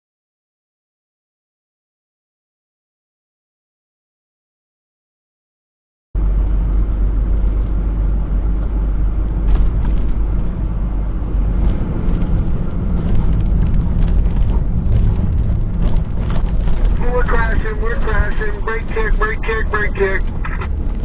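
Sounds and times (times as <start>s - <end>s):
vehicle engine and road rumble: 6.2s - 21.0s
light clicks and rattles: 6.7s - 7.8s, 8.6s - 10.7s, 11.5s - 21.0s.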